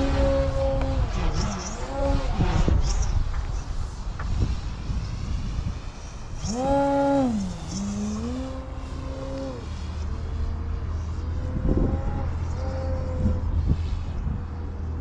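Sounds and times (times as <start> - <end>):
model airplane motor whining: 4.7 - 13.5.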